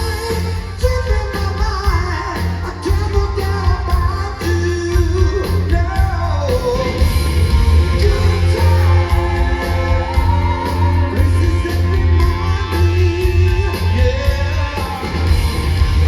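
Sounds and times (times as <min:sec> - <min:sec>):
bass guitar: 0:00.0 - 0:16.0
drums: 0:00.0 - 0:16.0
lead vocal singing: 0:00.0 - 0:16.0
electric guitar: 0:05.0 - 0:16.0.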